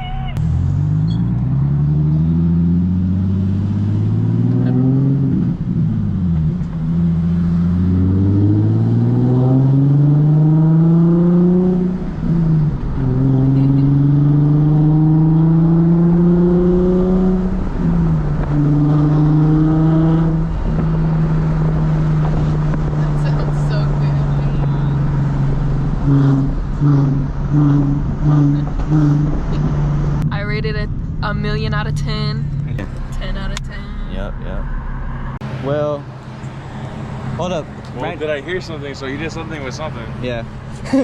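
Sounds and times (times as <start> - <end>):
car engine accelerating hard: 0.4 - 41.0.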